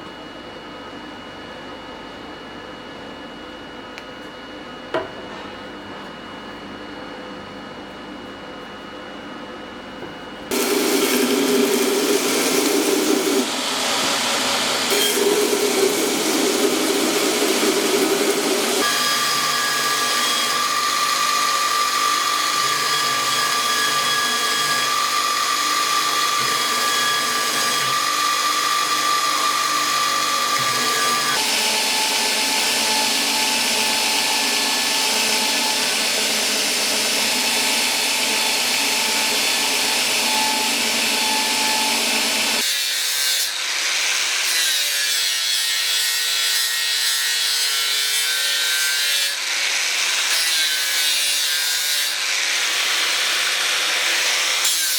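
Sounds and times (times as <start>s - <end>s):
power tool whining: 10.5s - 42.6s.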